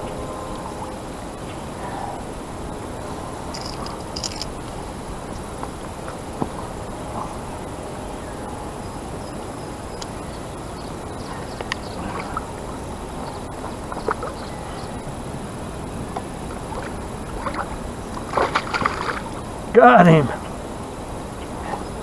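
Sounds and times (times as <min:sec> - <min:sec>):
river water rushing: 0:15.4 - 0:20.7.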